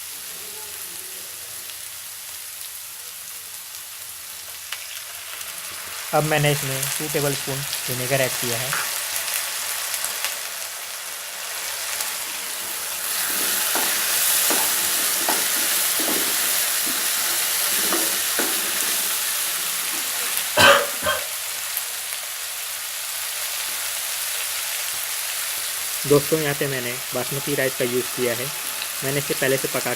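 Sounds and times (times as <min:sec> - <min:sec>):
vegetables sizzling in oil: 0:00.0 - 0:29.9
spatula stirring and scraping: 0:12.3 - 0:20.4
spatula knocks: 0:13.7 - 0:19.0.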